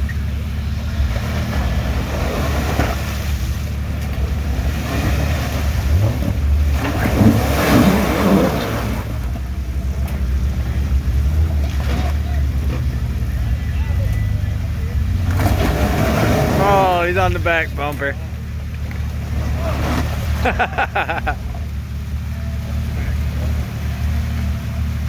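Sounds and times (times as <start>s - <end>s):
waterfall roaring: 16.5s - 18.1s.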